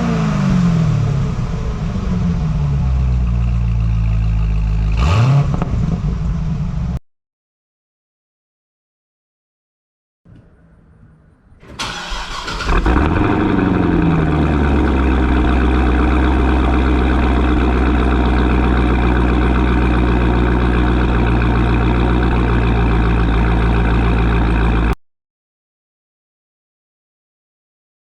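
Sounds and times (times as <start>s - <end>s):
car engine revving and idling: 0.0s - 7.0s, 11.6s - 25.0s
engine cranking: 11.6s - 19.6s.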